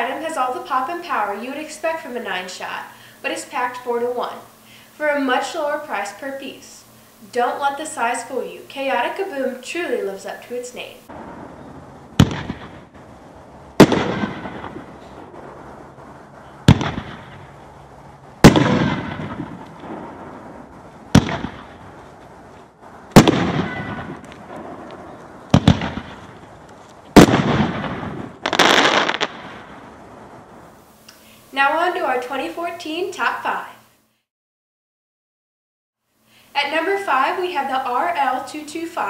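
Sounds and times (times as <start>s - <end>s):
firework bangs with rumble: 12.1s - 13.1s, 13.8s - 15.5s, 16.6s - 17.6s, 18.4s - 21.9s, 23.1s - 26.4s, 27.2s - 29.9s.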